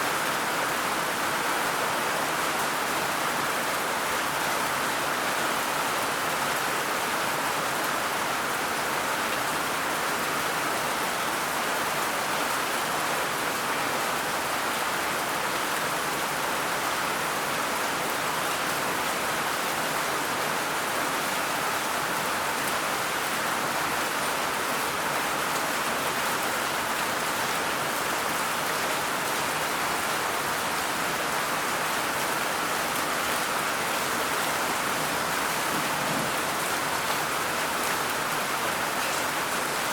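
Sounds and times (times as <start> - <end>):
rain pattering: 26.4 - 39.9.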